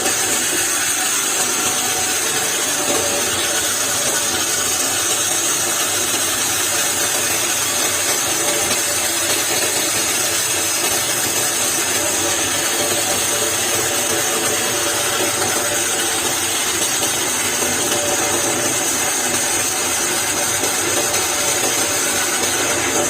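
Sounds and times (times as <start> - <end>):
woodworking power tool running: 0.0 - 23.0.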